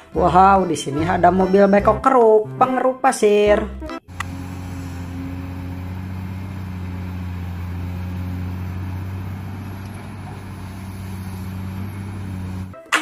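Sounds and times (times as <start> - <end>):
excavator diesel engine running: 4.1 - 12.8.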